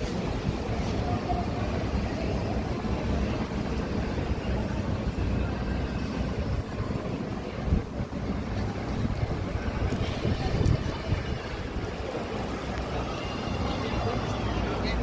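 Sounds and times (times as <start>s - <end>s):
passing traffic rumble: 0.0s - 15.0s
wind buffeting microphone: 3.9s - 13.2s.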